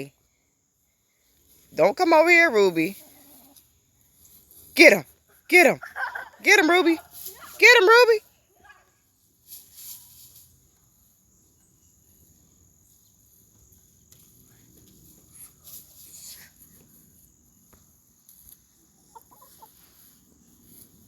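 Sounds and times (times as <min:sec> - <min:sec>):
hen clucking: 0:19.1 - 0:19.9.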